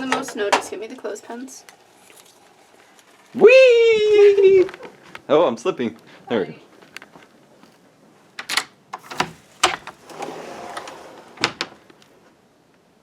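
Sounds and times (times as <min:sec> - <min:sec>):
door clicks and knocks: 0:08.4 - 0:10.3, 0:11.4 - 0:11.8
scraping rustle: 0:09.0 - 0:12.2.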